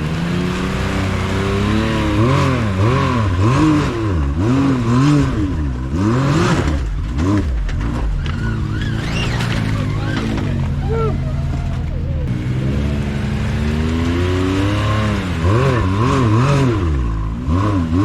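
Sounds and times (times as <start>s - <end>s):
off-road vehicle engine revving: 0.0s - 18.0s
short high squeals: 8.2s - 12.3s.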